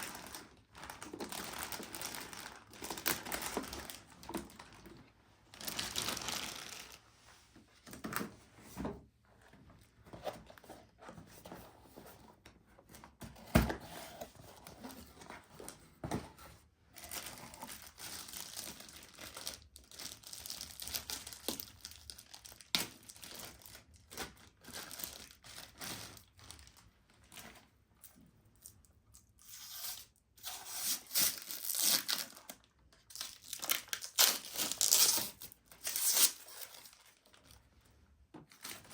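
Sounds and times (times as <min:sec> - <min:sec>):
crinkly wrapping crumpled and torn: 0:00.0 - 0:07.0, 0:17.0 - 0:27.7, 0:28.5 - 0:37.9.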